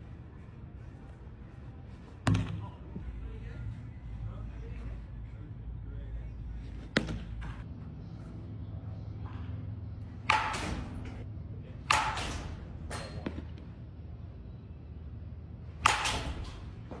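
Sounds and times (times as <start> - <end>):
steady low rumble: 0.0 - 11.9
baseball bat cracks: 10.2 - 11.1, 15.8 - 16.6.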